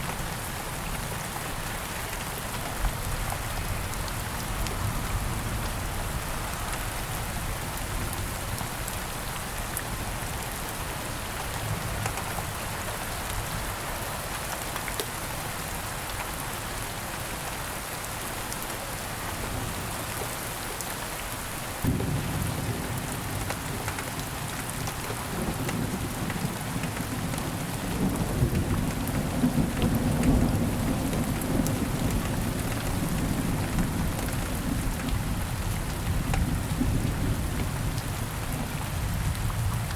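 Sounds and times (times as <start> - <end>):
steady rain falling: 0.0 - 39.9
low rumble of thunder: 21.8 - 24.3, 25.1 - 39.9.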